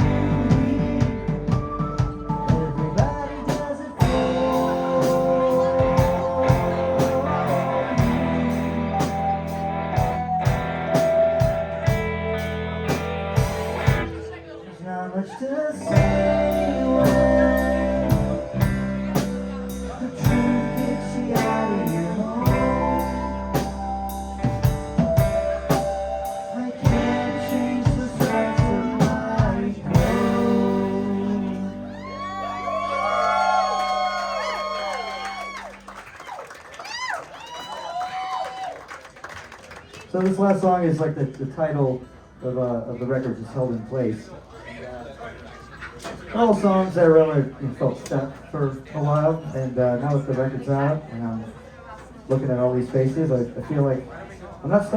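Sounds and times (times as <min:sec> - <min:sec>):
live rock band playing: 0:00.0 - 0:14.4, 0:15.9 - 0:33.1
crowd cheering and whistling: 0:31.9 - 0:39.1.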